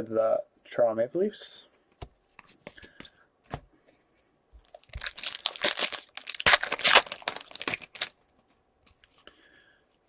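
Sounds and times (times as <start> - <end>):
wrapper crinkling and tearing: 4.6 - 8.2.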